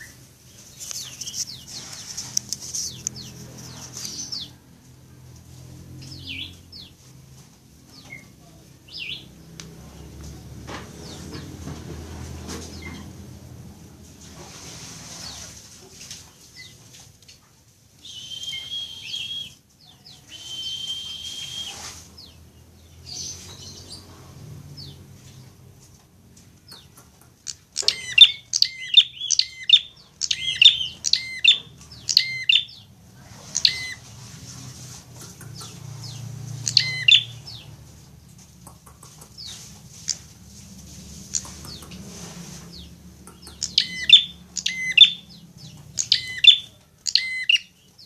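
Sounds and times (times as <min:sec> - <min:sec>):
bird rapid sharp chirps: 0:26.7 - 0:32.9, 0:33.5 - 0:34.0, 0:35.2 - 0:37.8, 0:41.3 - 0:48.0.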